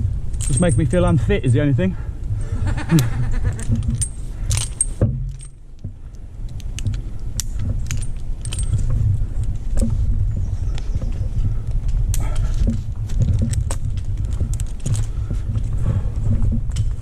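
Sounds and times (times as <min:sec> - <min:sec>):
low handling rumble: 0:00.0 - 0:17.0
metal karabiners clinking: 0:00.2 - 0:10.0, 0:10.6 - 0:17.0.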